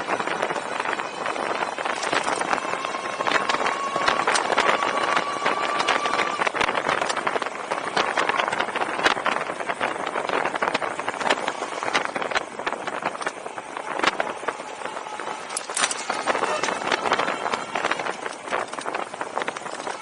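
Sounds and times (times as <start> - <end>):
high squeal: 0.0 - 8.9, 13.4 - 20.0
wind noise on microphone: 0.0 - 20.0.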